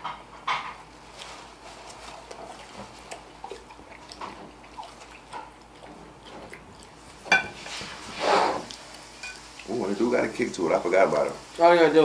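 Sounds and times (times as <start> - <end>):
people chewing food: 1.1 - 10.5.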